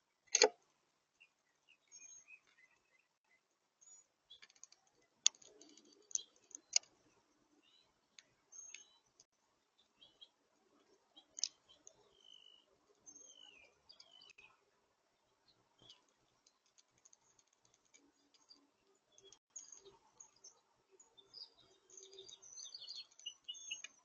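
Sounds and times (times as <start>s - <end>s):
sharp clicks: 0.3s - 0.6s
birds chirping: 1.2s - 24.0s.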